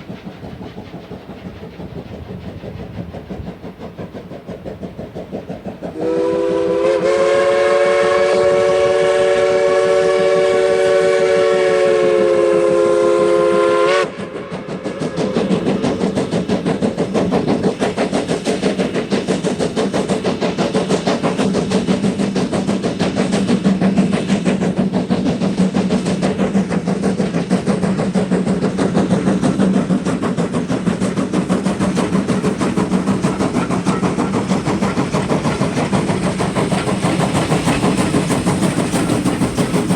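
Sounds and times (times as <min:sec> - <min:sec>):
steam train rumbling: 0:00.0 - 0:39.9
steam locomotive whistle: 0:05.9 - 0:15.7.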